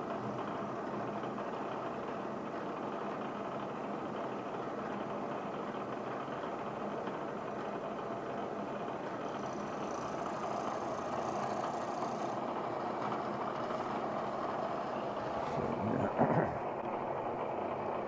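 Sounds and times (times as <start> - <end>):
metal-working machine running: 8.8 - 15.5.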